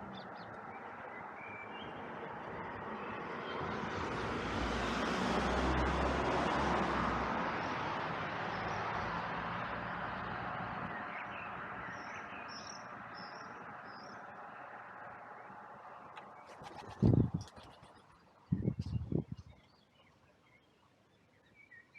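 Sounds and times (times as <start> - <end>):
vehicle passing by: 1.7 - 17.5.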